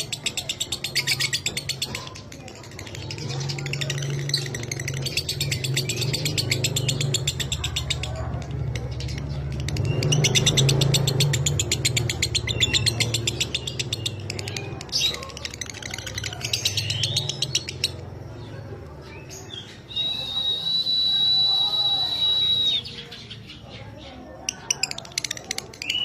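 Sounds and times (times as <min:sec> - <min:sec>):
lovebird chattering trill: 0:08.9 - 0:18.1.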